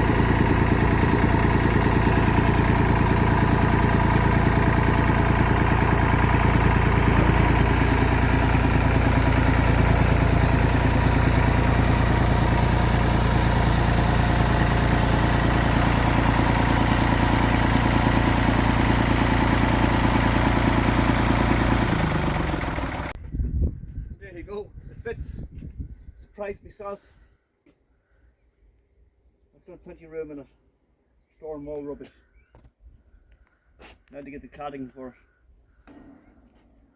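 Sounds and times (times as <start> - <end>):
tractor diesel engine running: 0.0 - 23.2.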